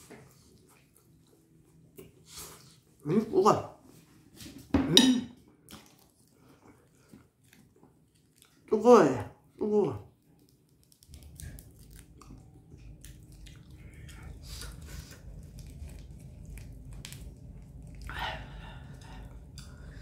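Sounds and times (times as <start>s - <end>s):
close chewing mouth sounds: 5.6s - 8.7s, 10.1s - 20.0s.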